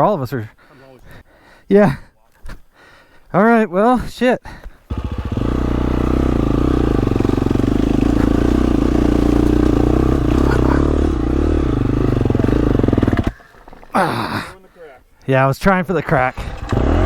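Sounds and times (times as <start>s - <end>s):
dirt bike engine running hard: 4.9s - 13.4s, 16.4s - 17.0s.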